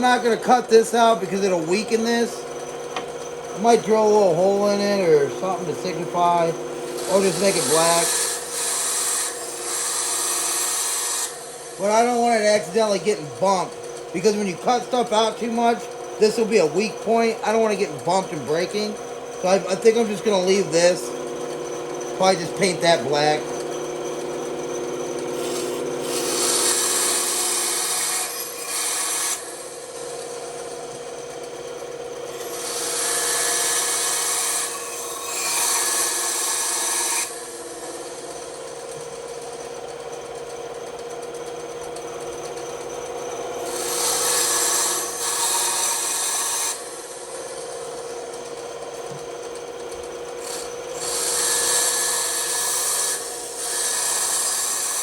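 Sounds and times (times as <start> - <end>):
woodworking power tool humming: 0.0 - 55.0
hissy wood cutting passes: 3.6 - 8.8.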